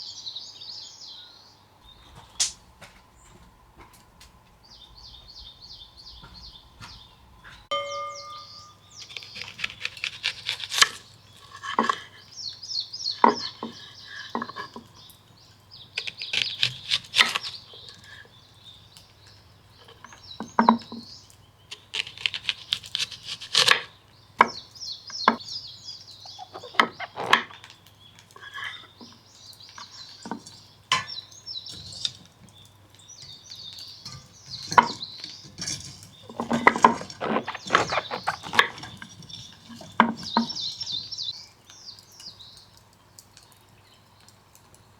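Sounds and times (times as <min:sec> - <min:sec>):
birds chirping: 0:00.0 - 0:44.9
dishes and utensils clinking: 0:06.2 - 0:12.1, 0:29.8 - 0:32.6, 0:33.2 - 0:41.1.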